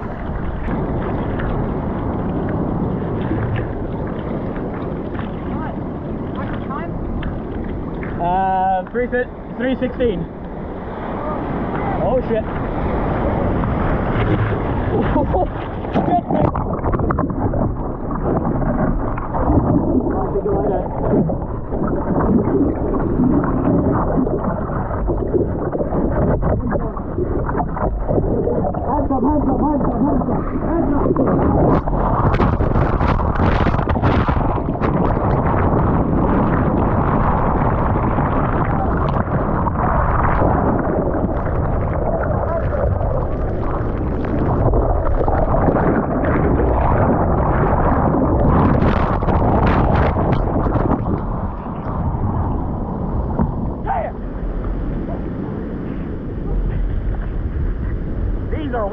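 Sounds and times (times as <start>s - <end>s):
ocean surf splashing: 0.0s - 58.9s
wind buffeting microphone: 0.0s - 58.9s.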